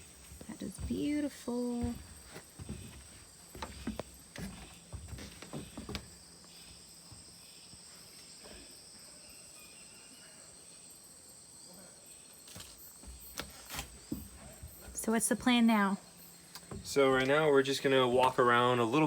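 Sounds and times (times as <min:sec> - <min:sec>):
insects trilling: 0:00.0 - 0:19.0
soft knocks: 0:00.4 - 0:06.2, 0:16.6 - 0:17.4.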